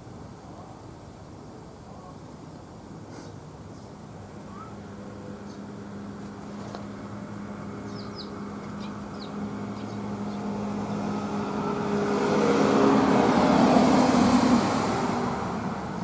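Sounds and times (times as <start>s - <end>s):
car passing: 5.2s - 16.0s.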